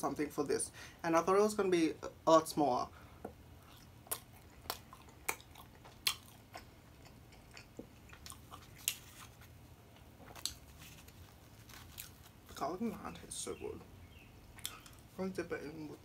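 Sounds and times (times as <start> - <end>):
chewing soft bread: 3.6 - 12.6.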